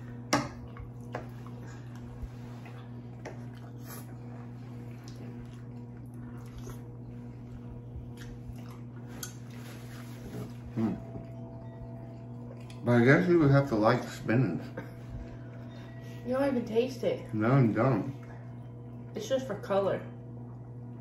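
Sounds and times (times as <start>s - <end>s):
people chewing wetly: 0.0s - 12.9s
steady low hum: 0.0s - 21.0s.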